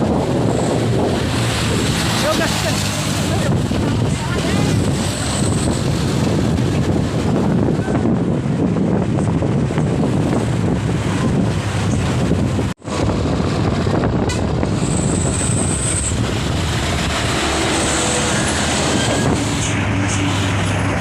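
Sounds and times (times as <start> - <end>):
diesel truck engine running: 0.0 - 21.0
wind noise on microphone: 0.0 - 21.0.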